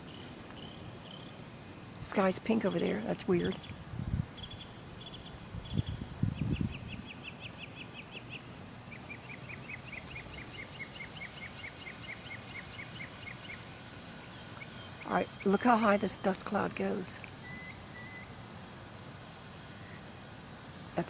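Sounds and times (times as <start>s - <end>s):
bird chirping: 0.0s - 1.4s, 4.4s - 16.5s, 17.4s - 18.4s
outdoor background noise: 0.0s - 21.0s.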